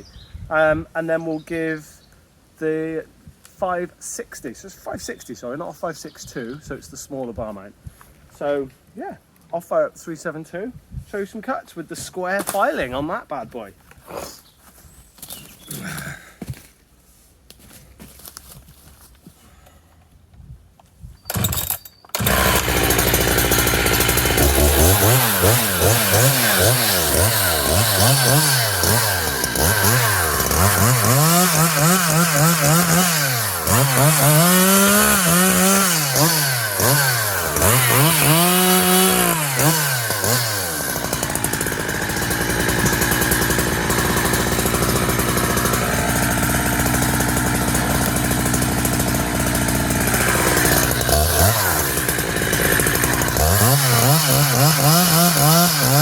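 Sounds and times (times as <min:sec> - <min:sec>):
chainsaw engine revving: 0:21.3 - 0:56.0
chainsaw pull-start: 0:21.3 - 0:56.0.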